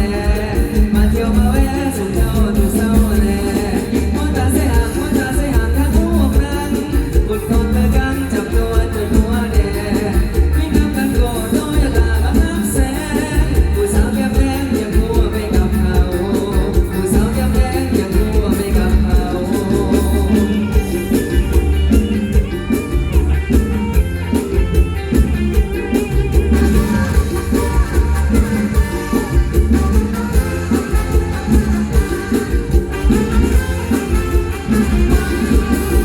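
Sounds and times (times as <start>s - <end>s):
person singing: 0.0s - 23.0s
band music through loudspeakers: 0.0s - 36.0s
steady bass beat: 0.0s - 36.0s.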